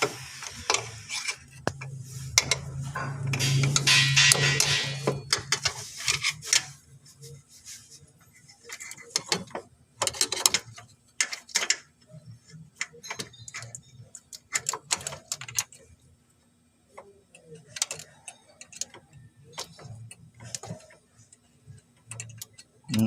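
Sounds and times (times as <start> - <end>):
loud noisy clatter: 2.7 - 5.4.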